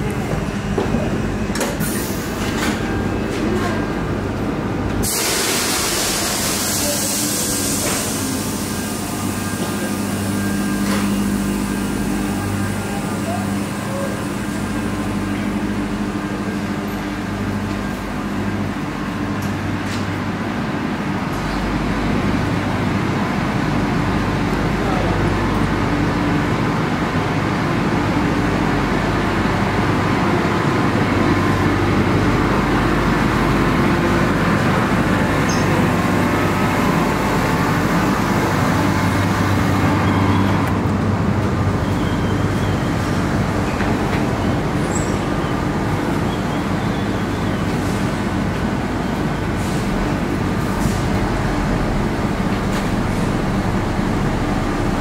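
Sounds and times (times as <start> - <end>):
electric train humming: 48.0 - 55.0.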